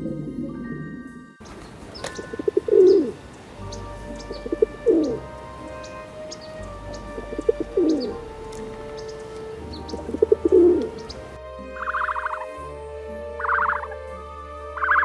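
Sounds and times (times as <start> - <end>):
pigeons cooing: 1.4 - 12.4
small birds chirping: 1.4 - 12.4.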